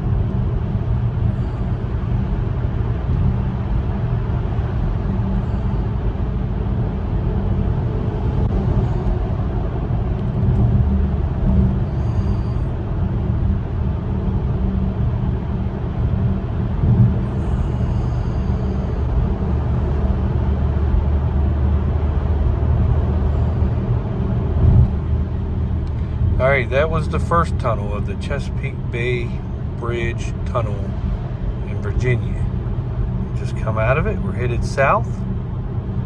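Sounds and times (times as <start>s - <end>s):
tyre and engine rumble in tunnel: 0.0s - 36.0s.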